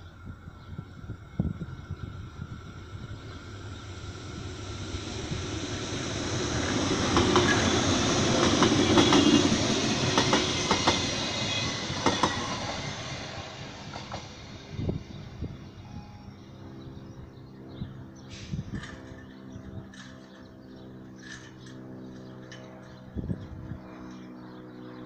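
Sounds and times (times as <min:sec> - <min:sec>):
train wheels on rails: 0:00.6 - 0:15.3, 0:18.3 - 0:20.4.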